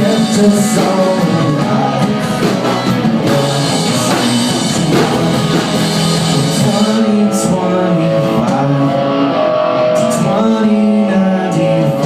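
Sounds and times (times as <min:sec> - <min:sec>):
live rock band playing: 0:00.0 - 0:12.0
person singing: 0:00.0 - 0:12.0.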